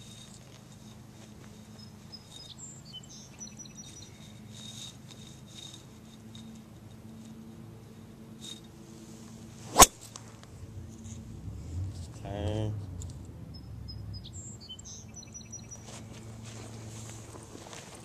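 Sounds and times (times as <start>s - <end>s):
faint low hum: 0.0s - 18.0s
sharp crack: 9.7s - 10.3s.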